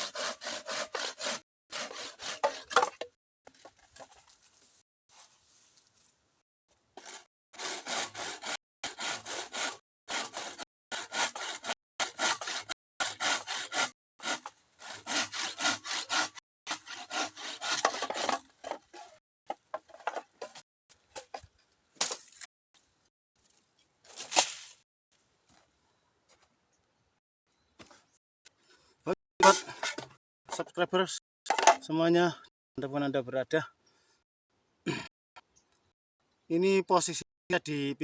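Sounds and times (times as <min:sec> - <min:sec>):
hand saw cutting bamboo: 0:00.0 - 0:03.8, 0:07.0 - 0:19.2, 0:29.4 - 0:30.1.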